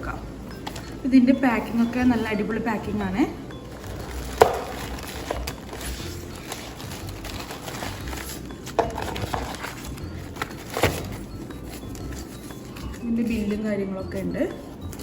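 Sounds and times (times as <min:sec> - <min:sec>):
packaging rustling: 0:03.6 - 0:13.6.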